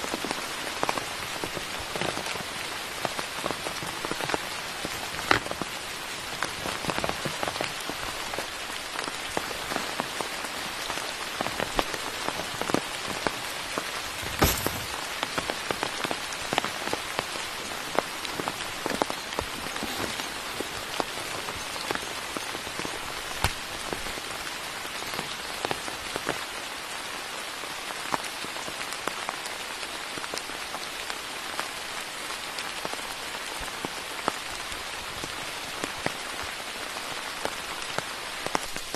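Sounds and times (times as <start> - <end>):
rain falling in forest: 0.0 - 38.9
raindrops ticking: 0.2 - 26.4.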